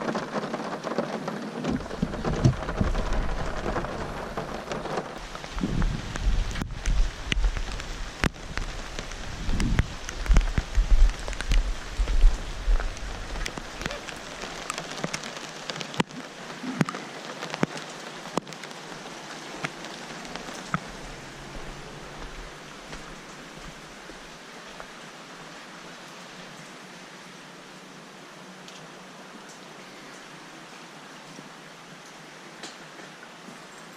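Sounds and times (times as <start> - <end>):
heavy rain pattering: 0.0 - 33.9
low gusty rumble: 1.7 - 14.6, 19.5 - 24.4.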